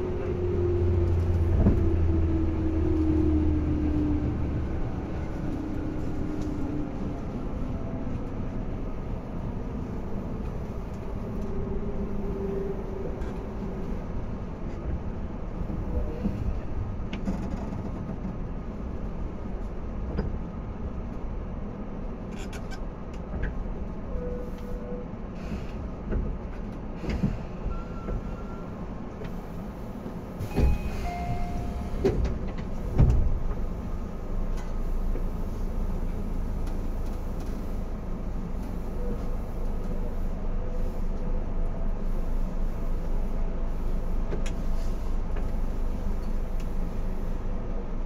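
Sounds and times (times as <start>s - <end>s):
train car low rumble: 0.0s - 48.0s
short single tones: 30.4s - 32.0s.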